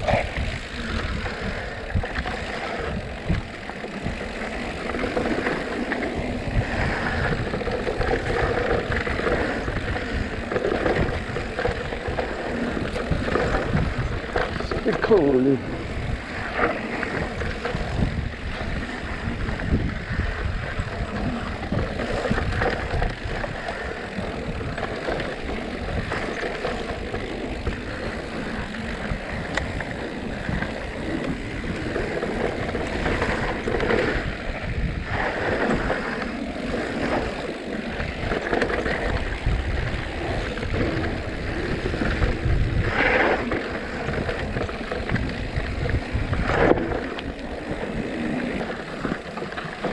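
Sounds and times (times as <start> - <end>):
bike tyres rattling on dirt: 0.0 - 49.9
wind on microphone: 0.0 - 49.9.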